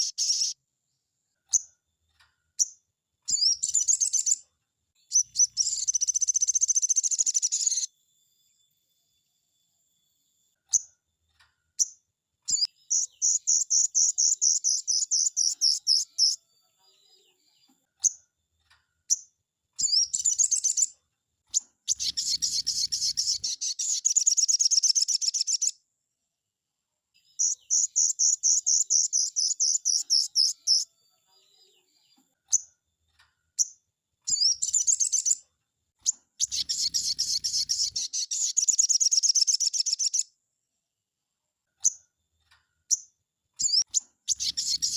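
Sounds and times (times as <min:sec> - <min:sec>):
songbird chattering trills: 0:00.0 - 0:00.6, 0:05.1 - 0:07.9, 0:12.5 - 0:16.4, 0:21.9 - 0:25.7, 0:27.4 - 0:30.8, 0:34.3 - 0:35.4, 0:36.4 - 0:40.2, 0:43.6 - 0:44.9.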